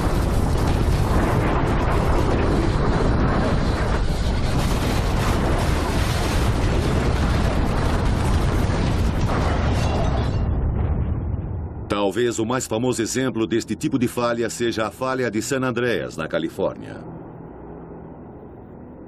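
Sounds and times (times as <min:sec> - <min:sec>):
earthquake rumbling roar: 0:00.0 - 0:11.9.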